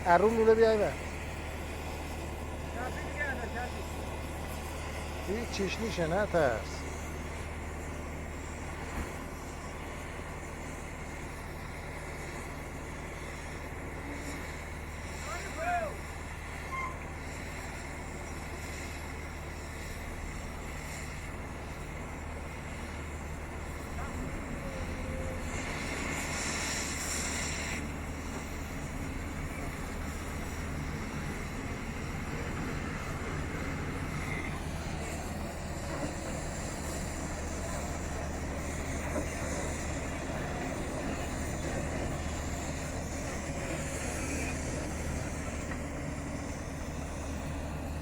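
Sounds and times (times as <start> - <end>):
heavy engine rumbling: 0.0 - 48.0
brief hiss: 23.8 - 30.6.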